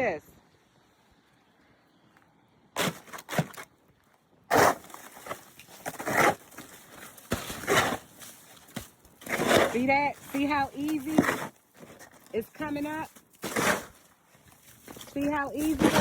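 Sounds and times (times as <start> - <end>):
snow shovel scraping icy snow: 2.8 - 3.6, 4.5 - 16.0.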